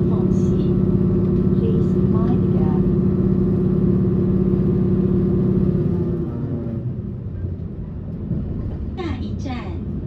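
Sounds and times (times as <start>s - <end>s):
train wheels rumbling on rails: 0.0s - 6.1s, 7.1s - 10.0s
train motor hum: 0.0s - 6.9s.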